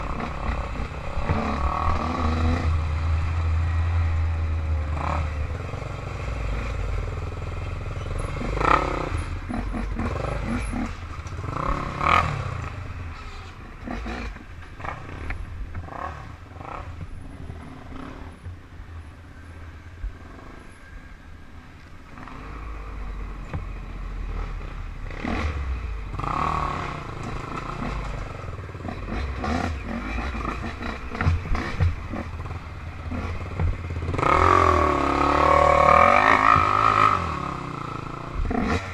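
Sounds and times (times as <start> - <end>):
off-road engines revving: 0.0 - 18.7, 22.1 - 38.9
sharp knocks and clatter: 27.2 - 32.3.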